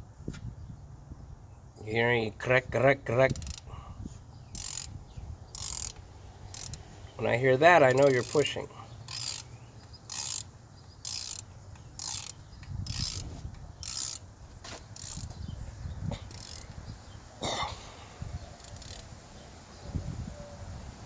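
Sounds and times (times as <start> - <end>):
ratchet wrench clicking: 3.2 - 3.7, 4.5 - 6.9, 7.8 - 15.4, 16.2 - 16.8, 18.6 - 19.1.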